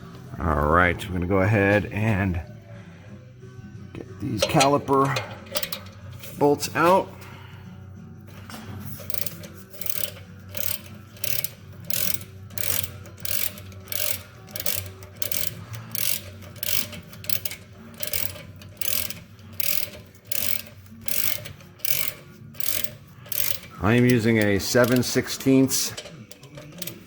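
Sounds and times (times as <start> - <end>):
socket ratchet clicking: 4.4 - 6.4, 9.0 - 27.0.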